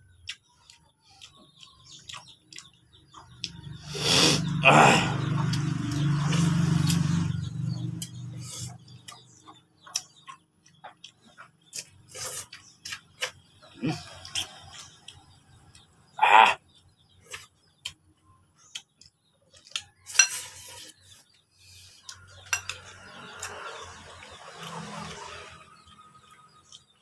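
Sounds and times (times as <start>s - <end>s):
chewing and lip-smacking: 0.1s - 3.8s, 7.7s - 16.0s, 18.7s - 20.0s, 20.7s - 27.0s.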